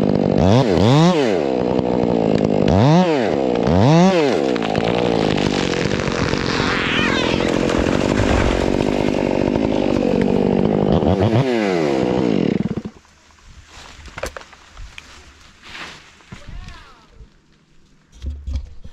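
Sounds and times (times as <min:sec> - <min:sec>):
chainsaw cutting wood: 0:00.0 - 0:13.2.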